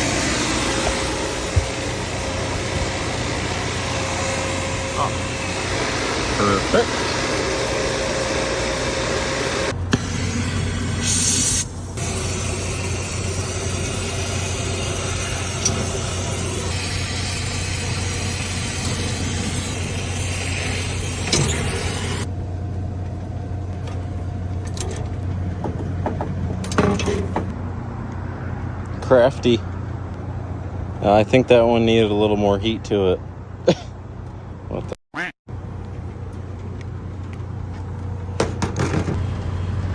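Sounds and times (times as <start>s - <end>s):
torch flame hissing: 0.0s - 22.3s
blower motor humming: 0.0s - 27.5s.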